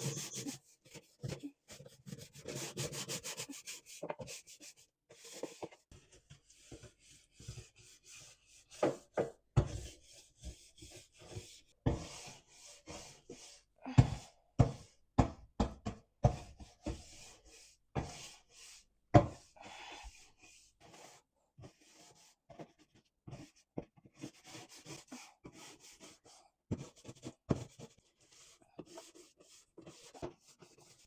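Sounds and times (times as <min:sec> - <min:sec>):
scrubbing pad rubbing and scraping: 0:00.0 - 0:05.7.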